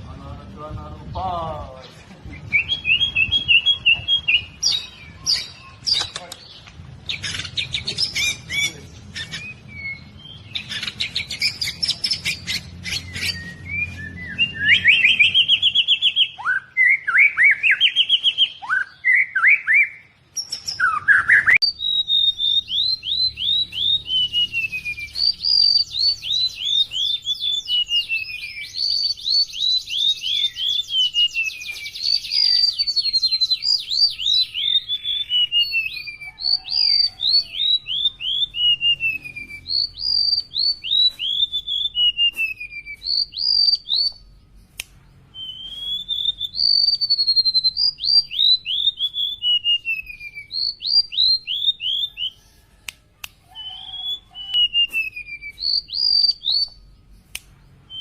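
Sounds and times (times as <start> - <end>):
songbirds singing: 0.0 - 58.0
sharp bird chirps and clicks: 2.6 - 58.0
quick whistled bird notes: 7.1 - 44.2.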